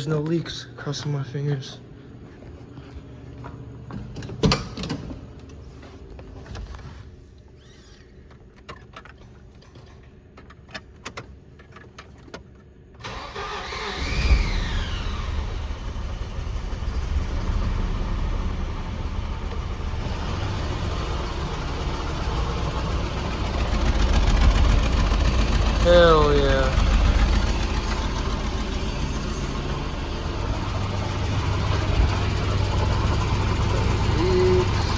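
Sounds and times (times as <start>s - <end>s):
car engine cranking and starting: 13.0s - 34.9s
car engine idling: 13.0s - 34.9s.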